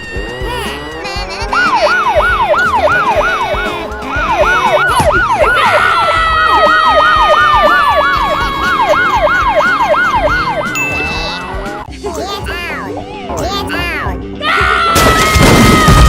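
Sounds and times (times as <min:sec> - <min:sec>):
siren yelping: 0:00.0 - 0:11.9.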